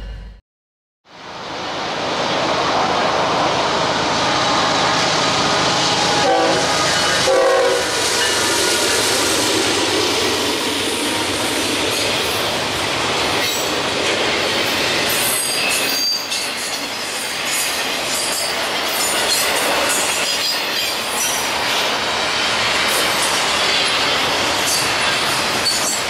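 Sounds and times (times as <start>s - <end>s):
freight train wheels rushing on rail: 1.1s - 26.0s
high wheel squeals: 14.8s - 21.5s, 24.6s - 26.0s.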